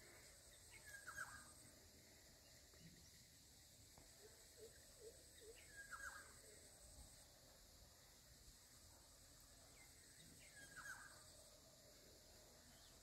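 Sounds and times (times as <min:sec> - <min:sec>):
faint high hiss: 0:00.0 - 0:13.0.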